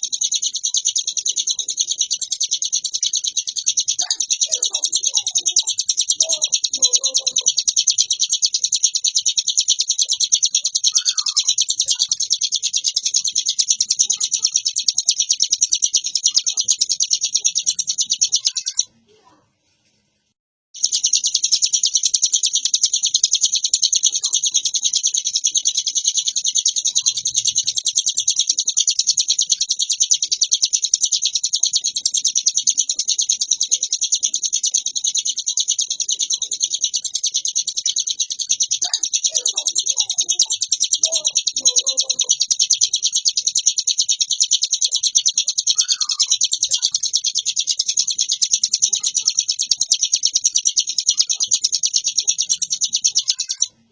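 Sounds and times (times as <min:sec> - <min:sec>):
bird singing rapid rattling trill: 0:00.0 - 0:19.2, 0:20.8 - 0:53.9.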